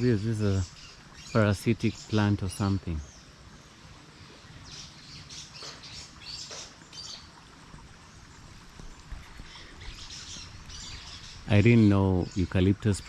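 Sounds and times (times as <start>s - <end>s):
wild birds chirping: 0.0s - 13.0s.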